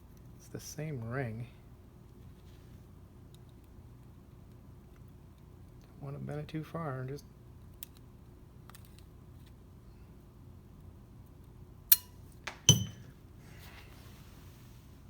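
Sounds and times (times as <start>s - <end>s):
metal ring clinking on floor: 12.5s - 13.2s.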